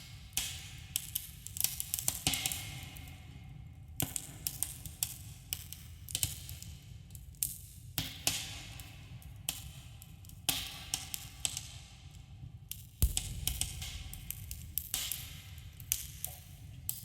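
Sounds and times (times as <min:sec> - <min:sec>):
low rumble: 0:13.0 - 0:15.6.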